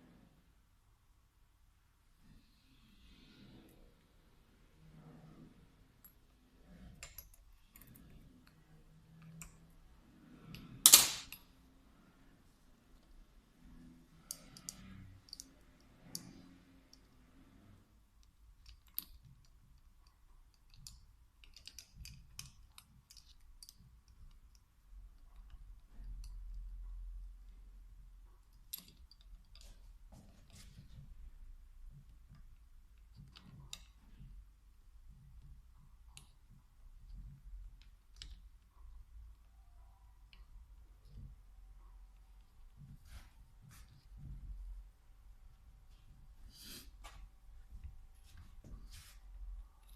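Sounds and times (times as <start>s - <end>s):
clicks of metal parts and tools: 14.2s - 17.2s.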